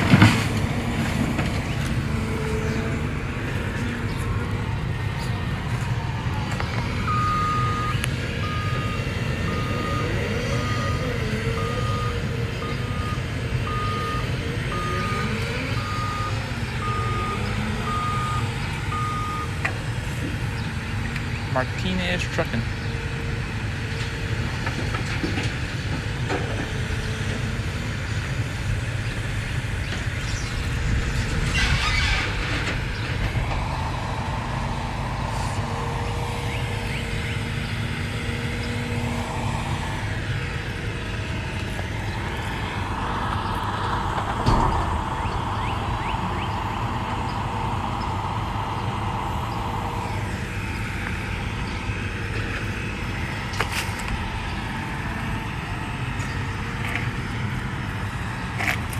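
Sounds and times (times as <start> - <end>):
excavator diesel engine running: 0.0 - 58.9
whine: 30.0 - 58.9.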